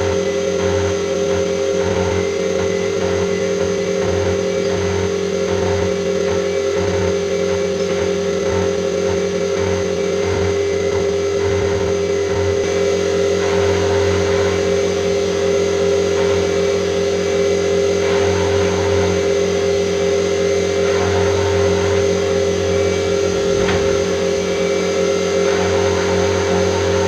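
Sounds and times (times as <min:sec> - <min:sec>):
milling machine humming: 0:00.0 - 0:27.0.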